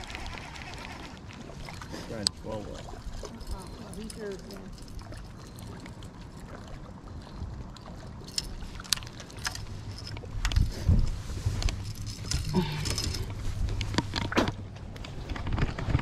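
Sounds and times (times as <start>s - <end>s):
clicks and knocks of handling gear: 8.3s - 16.0s.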